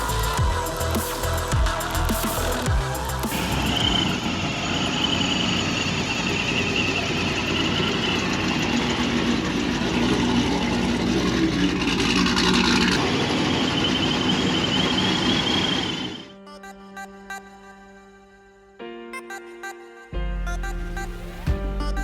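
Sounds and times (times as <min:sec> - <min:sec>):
car engine running: 0:06.8 - 0:15.4.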